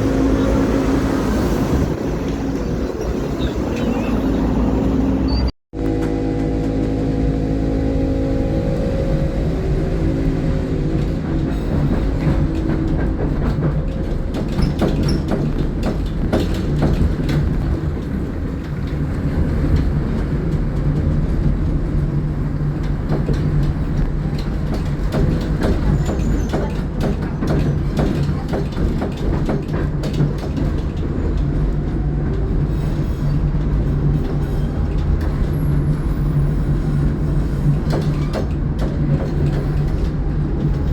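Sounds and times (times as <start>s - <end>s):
tram motors whining: 0.0s - 29.6s
low hum: 2.0s - 13.2s
wheels clicking over rail joints: 9.1s - 40.9s.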